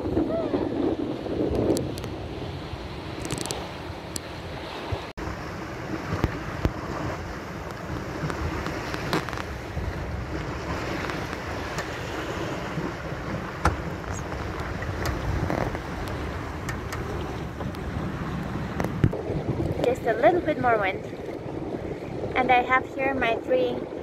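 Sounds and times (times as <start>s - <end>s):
water splashing along boat hull: 0.0s - 24.0s
wind buffeting microphone: 0.0s - 24.0s
boat knocks: 5.9s - 19.9s.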